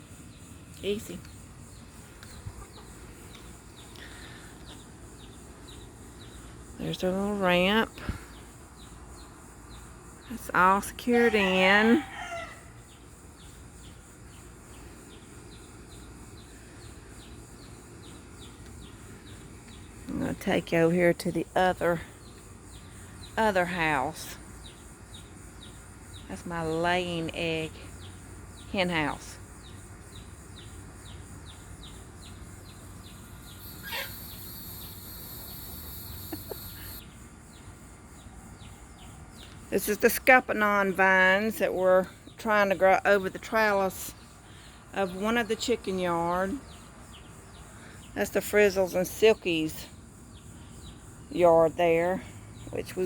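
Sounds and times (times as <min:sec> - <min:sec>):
faint high chirps: 0:32.7 - 0:37.0
high hiss: 0:32.9 - 0:37.0.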